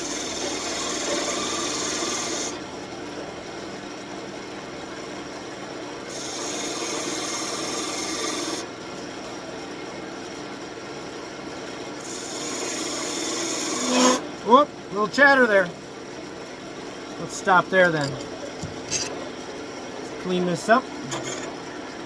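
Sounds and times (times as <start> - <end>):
wood lathe running: 0.0 - 2.7, 6.1 - 8.7, 12.0 - 15.7
turning tool scraping wood: 12.0 - 14.3, 17.3 - 19.2, 21.1 - 21.6.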